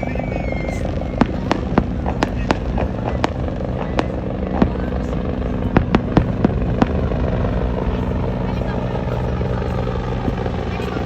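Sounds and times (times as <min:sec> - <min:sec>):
fireworks bangs: 0:00.0 - 0:08.1
steady low rumble: 0:00.0 - 0:11.0.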